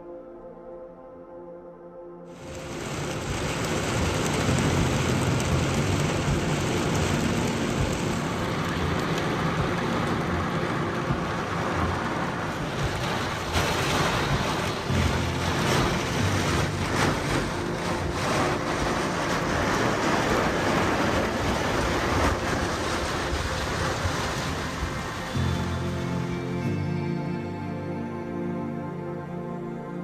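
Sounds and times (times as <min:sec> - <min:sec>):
wind buffeting microphone: 0:02.4 - 0:26.2.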